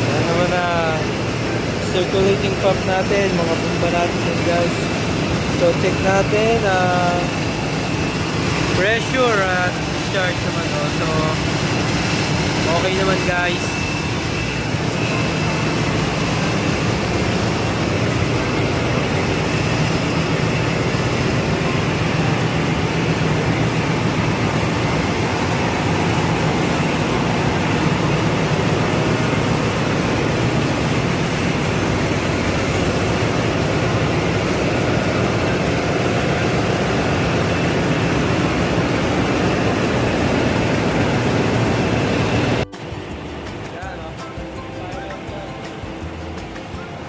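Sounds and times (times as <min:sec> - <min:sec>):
engine room low hum: 0:00.0 - 0:47.0
high machinery whine: 0:00.0 - 0:47.0.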